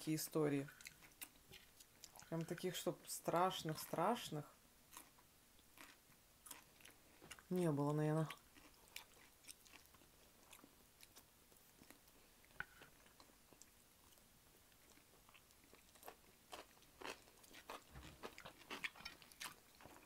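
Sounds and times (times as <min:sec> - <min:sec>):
chewing and biting food: 0:05.8 - 0:07.5, 0:08.3 - 0:20.0.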